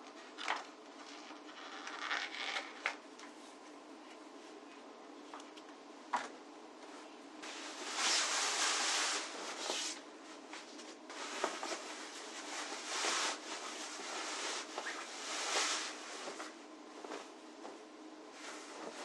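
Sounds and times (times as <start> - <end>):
rustling from handling things: 6.1 - 17.8.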